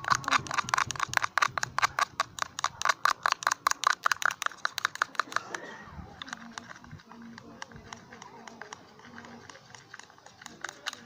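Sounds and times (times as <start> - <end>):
spoon beating slime in a tub: 6.2 - 11.0.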